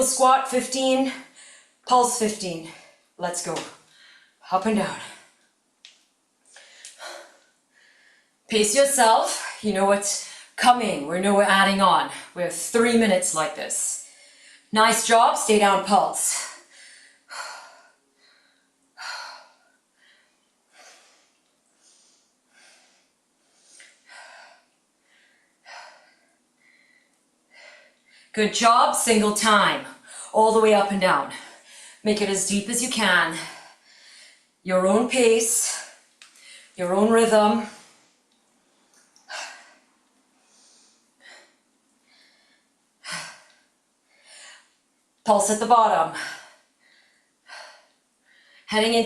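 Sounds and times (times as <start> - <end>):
woman breathing hard: 6.5 - 8.4, 16.4 - 28.3, 39.2 - 44.8, 46.2 - 48.7.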